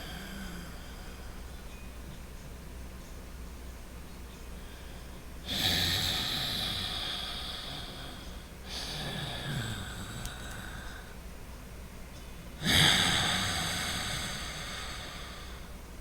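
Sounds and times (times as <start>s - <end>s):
noisy breathing through nose: 12.6s - 15.8s.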